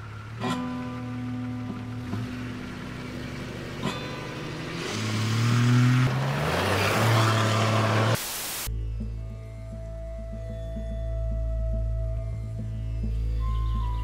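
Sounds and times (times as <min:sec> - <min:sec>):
car engine accelerating: 0:00.0 - 0:08.2.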